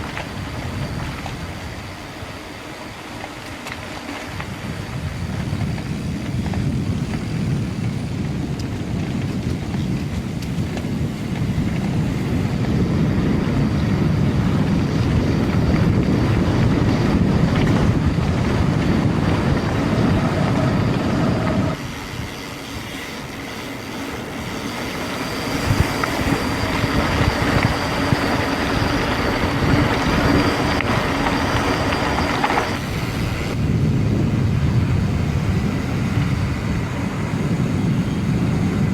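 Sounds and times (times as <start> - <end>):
bike tyre noise: 0.0 - 38.9
wind rushing over microphone: 0.0 - 38.9
faint high whine: 11.8 - 38.9.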